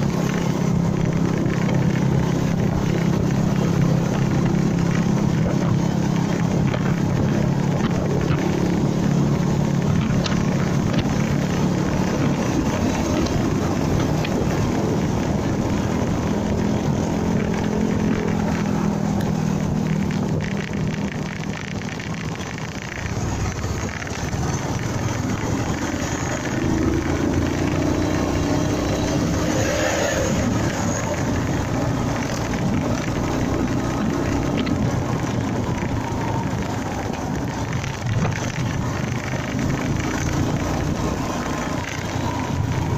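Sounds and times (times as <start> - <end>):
motorcycle engine running: 0.0 - 42.9
wind and road noise: 0.0 - 42.9.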